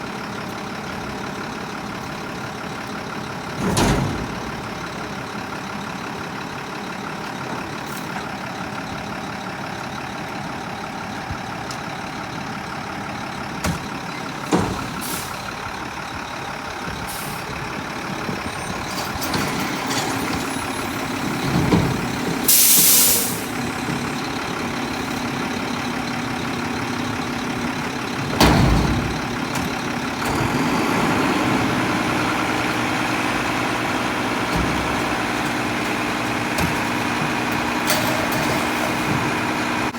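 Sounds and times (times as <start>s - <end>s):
garbage truck engine running: 0.0s - 39.9s
air hiss burst: 22.5s - 23.6s.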